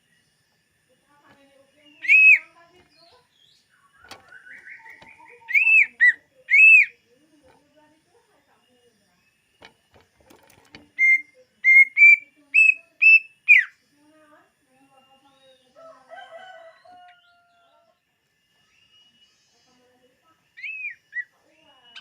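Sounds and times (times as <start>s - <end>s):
bird twittering: 1.3s - 7.7s, 10.6s - 13.8s, 20.6s - 22.0s.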